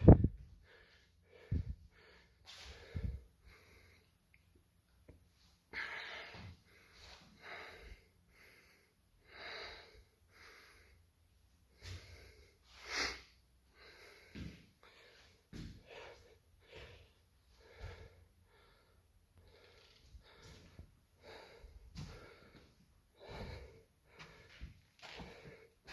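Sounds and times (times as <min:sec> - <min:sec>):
person breathing heavily: 0:00.0 - 0:04.3, 0:05.6 - 0:25.9.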